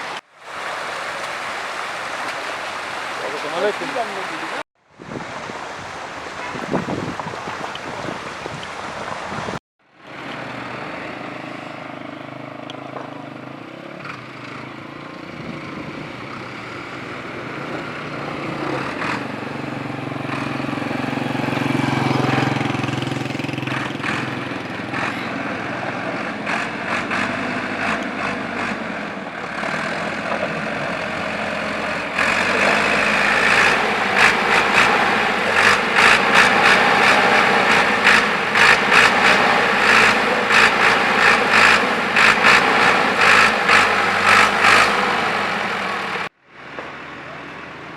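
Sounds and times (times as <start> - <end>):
heavy vehicle engine running: 5.2 - 47.9
steady rushing noise: 17.0 - 46.3.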